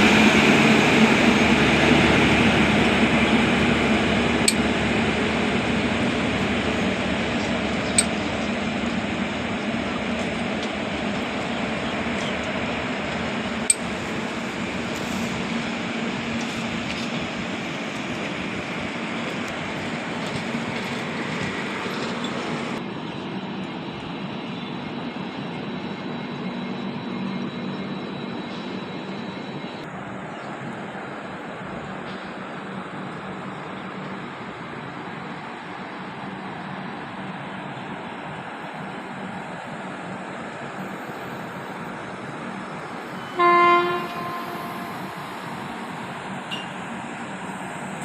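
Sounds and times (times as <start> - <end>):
train wheels rumbling and rattling: 0.0 - 29.8.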